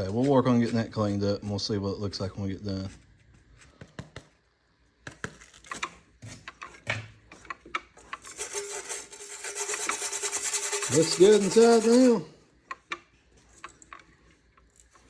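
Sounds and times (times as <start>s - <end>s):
hand scraping and rubbing metal: 6.2s - 15.0s.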